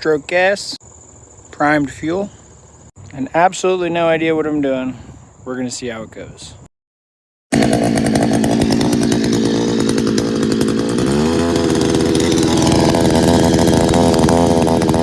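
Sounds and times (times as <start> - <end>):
outboard motor revving: 7.5 - 15.0.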